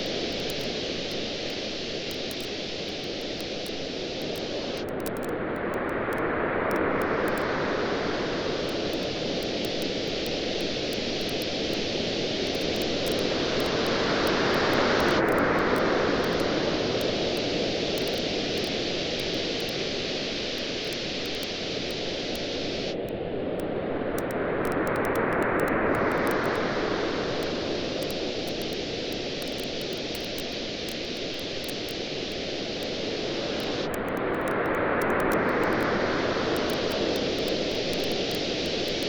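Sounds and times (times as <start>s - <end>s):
campfire crackling: 0.0s - 5.2s, 8.6s - 23.0s, 36.5s - 39.0s
ocean waves washing onto beach: 0.0s - 39.0s.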